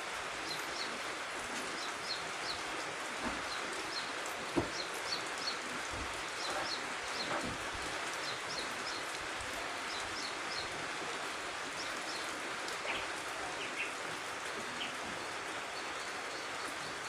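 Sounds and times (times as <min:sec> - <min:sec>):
light rain falling: 0:00.0 - 0:17.0
bird chirping: 0:03.5 - 0:07.5.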